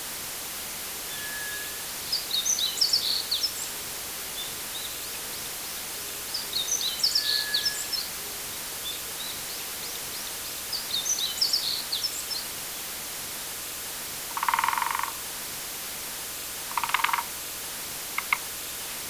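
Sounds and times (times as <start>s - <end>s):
steady background hiss: 0.0s - 19.0s
small birds chirping: 2.1s - 3.8s, 6.2s - 8.2s, 8.8s - 12.5s.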